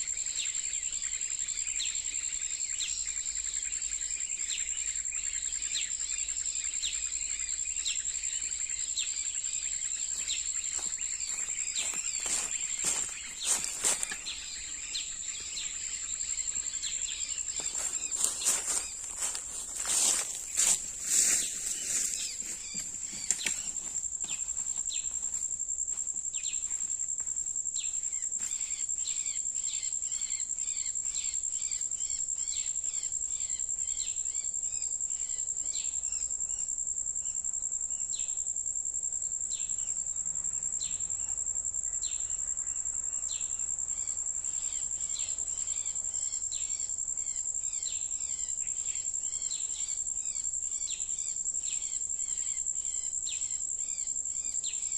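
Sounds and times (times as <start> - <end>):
songbird chirps: 0.0 - 36.6
high-pitched insect drone: 0.0 - 54.9.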